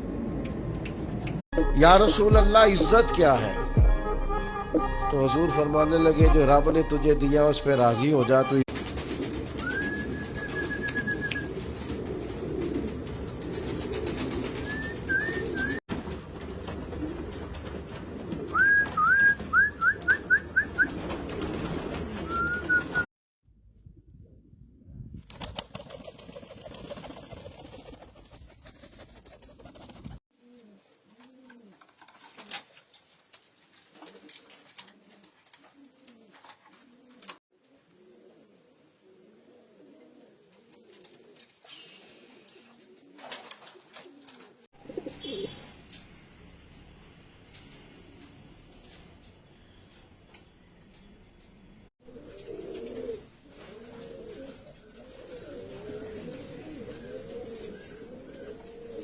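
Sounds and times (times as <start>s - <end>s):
higher rising pigeon calls: 8.8s - 15.8s, 16.4s - 23.1s, 25.3s - 31.7s, 52.1s - 59.0s
pigeons cooing: 9.0s - 15.8s, 16.4s - 23.1s, 25.4s - 31.7s, 35.7s - 45.8s, 52.1s - 59.0s.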